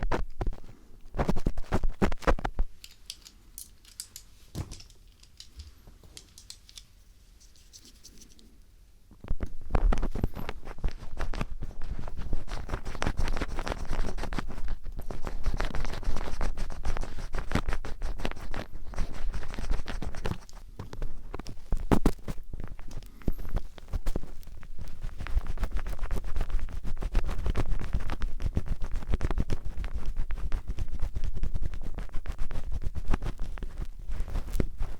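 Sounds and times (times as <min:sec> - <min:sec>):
screwdriver scratching microphone: 0:09.7 - 0:20.6.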